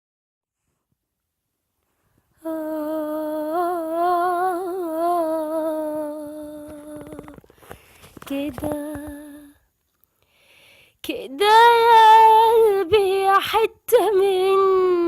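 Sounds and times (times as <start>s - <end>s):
woman humming a slow melody: 2.4s - 7.4s.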